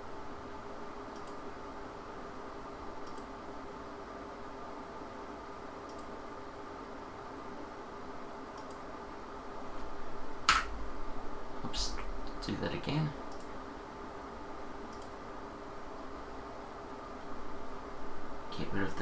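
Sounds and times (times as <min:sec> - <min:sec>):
faint background hum: 0:00.0 - 0:19.0
computer mouse clicking: 0:01.1 - 0:01.4, 0:03.0 - 0:03.3, 0:05.9 - 0:06.1, 0:08.6 - 0:08.9, 0:13.3 - 0:13.6, 0:14.9 - 0:15.2.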